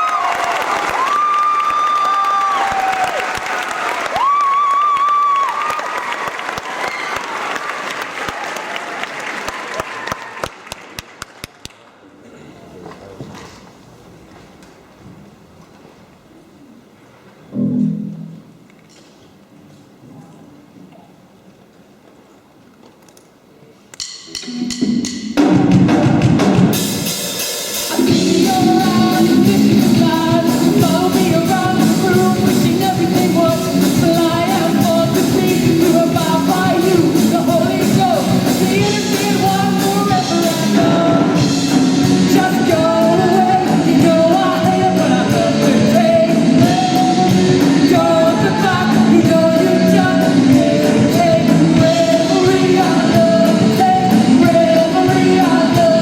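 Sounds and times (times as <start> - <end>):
rock band playing: 24.4 - 56.0
man singing: 27.9 - 56.0.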